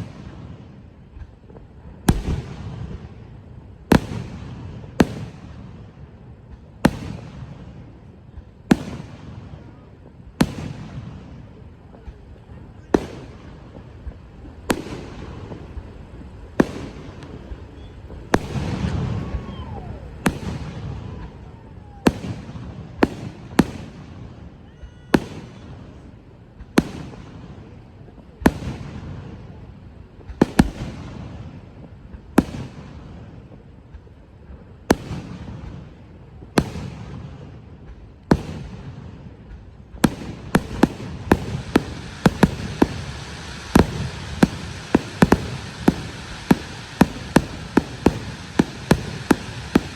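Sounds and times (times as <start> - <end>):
crackling firework bangs: 0.0 - 49.9
fireworks bangs: 0.0 - 49.9.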